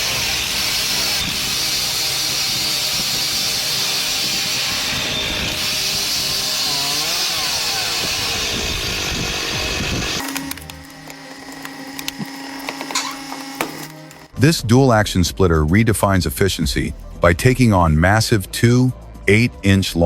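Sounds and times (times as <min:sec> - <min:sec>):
chainsaw cutting wood: 0:00.0 - 0:14.4.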